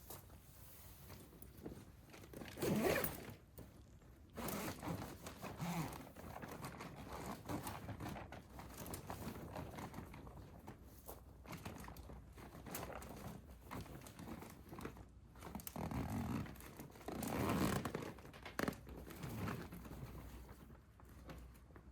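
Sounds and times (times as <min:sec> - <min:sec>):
plastic or fabric rustling: 0:00.0 - 0:21.9
zipper-like rasp: 0:02.6 - 0:03.3.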